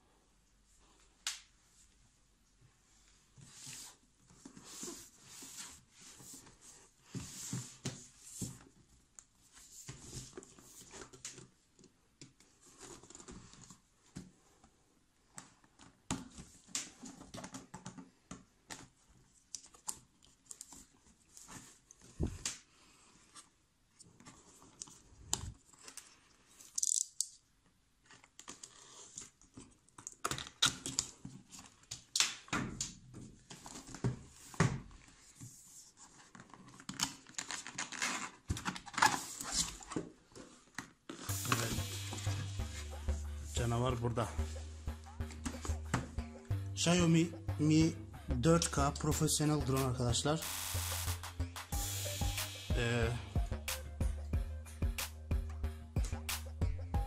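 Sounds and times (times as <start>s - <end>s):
cardboard sliding hiss: 41.3s - 42.6s, 51.8s - 52.7s.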